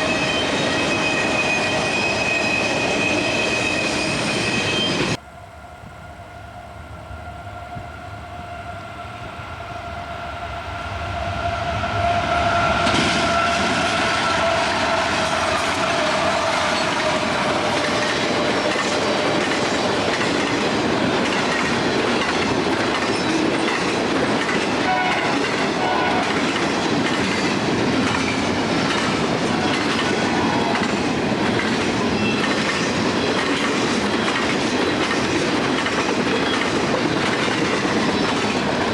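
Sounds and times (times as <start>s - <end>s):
train horn: 0.0s - 19.6s, 24.8s - 26.6s, 29.4s - 30.9s
train wheels clattering on rails: 12.0s - 38.9s.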